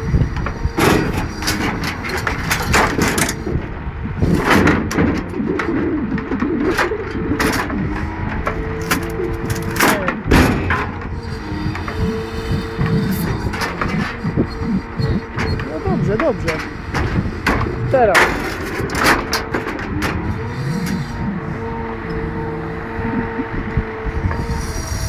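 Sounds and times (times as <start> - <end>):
hydraulic whining: 0.0 - 25.0
truck engine running: 0.0 - 25.0
logs knocking and clunking: 12.7 - 20.5.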